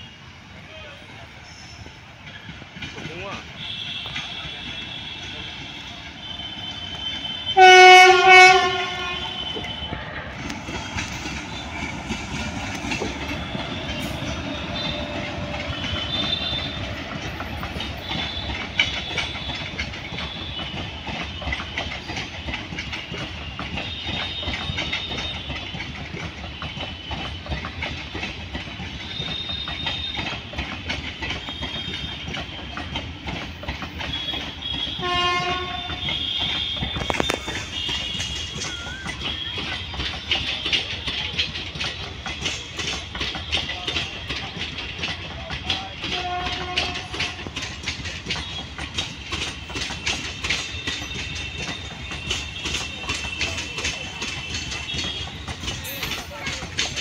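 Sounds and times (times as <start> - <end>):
train rumbling past: 0.0 - 57.0
wheels clacking over rail joints: 0.6 - 57.0
locomotive horn blast: 3.6 - 10.4, 13.0 - 21.6, 34.0 - 40.9, 46.0 - 48.9.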